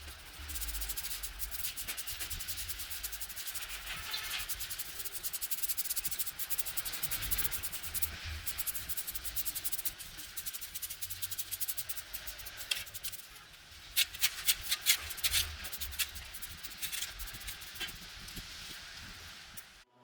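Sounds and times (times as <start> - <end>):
rapid scrubbing strokes: 0.0 - 19.8.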